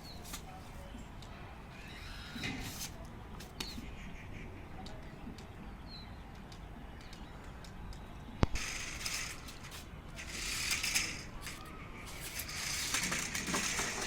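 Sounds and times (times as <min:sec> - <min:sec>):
toy car click: 0:08.5 - 0:11.7, 0:12.3 - 0:14.0
plastic parts and wheels rattling: 0:08.5 - 0:14.0.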